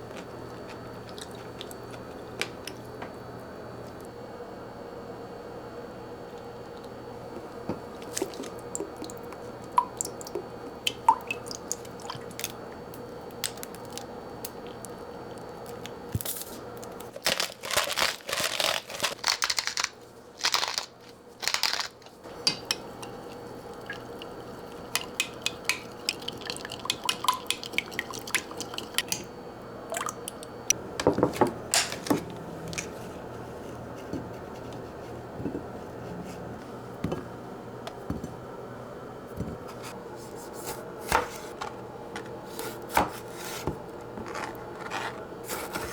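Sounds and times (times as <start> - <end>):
dishes and utensils clicking: 22.3 - 23.2
scraping and rustling handling: 39.6 - 45.9.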